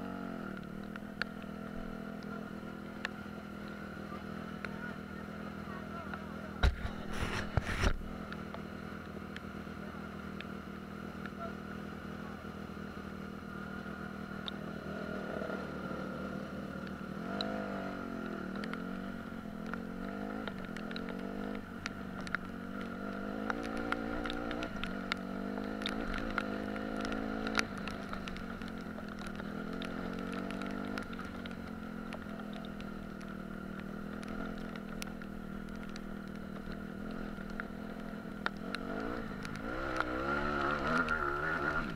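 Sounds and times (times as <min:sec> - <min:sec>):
small ticks: 0:00.5 - 0:02.4, 0:10.3 - 0:10.6, 0:13.9 - 0:14.9, 0:16.8 - 0:41.9
dirt bike engine revving: 0:14.8 - 0:34.8, 0:36.6 - 0:41.9.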